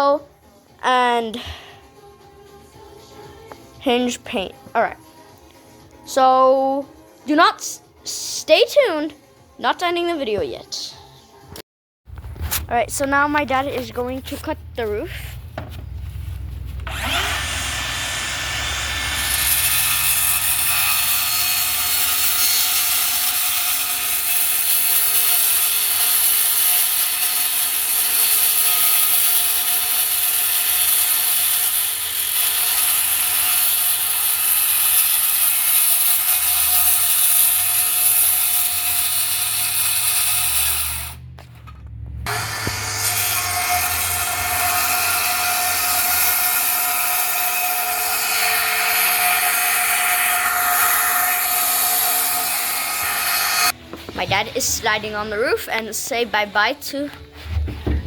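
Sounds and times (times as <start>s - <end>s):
power saw cutting wood: 16.8s - 41.4s, 42.2s - 53.8s.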